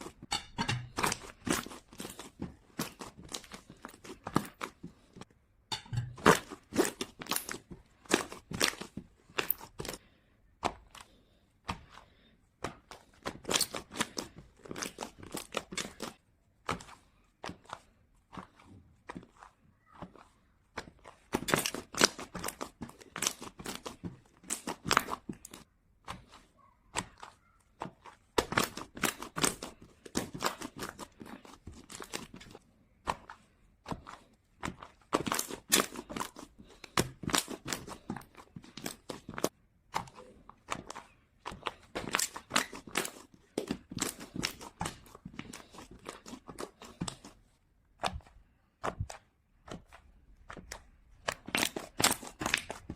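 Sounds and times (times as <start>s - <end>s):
slime crackling and popping: 6.0s - 10.0s, 20.8s - 25.6s, 40.2s - 47.3s, 49.8s - 52.9s.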